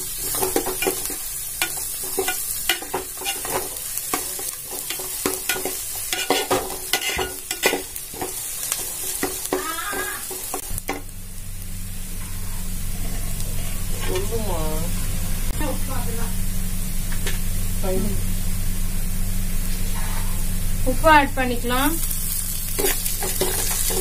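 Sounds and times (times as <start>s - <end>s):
onions sizzling in oil: 0.0s - 24.0s
ladle scraping and knocking pan: 0.2s - 8.3s
low steady hum: 9.5s - 24.0s.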